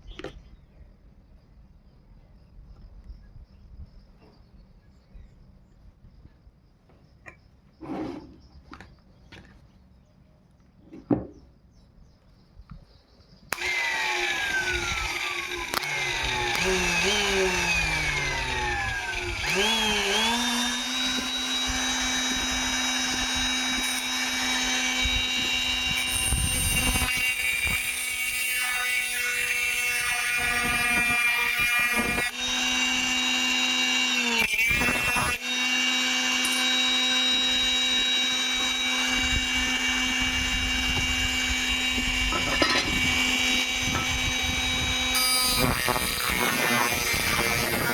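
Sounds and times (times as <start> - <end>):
electric grinder motor whining: 13.5 - 47.9.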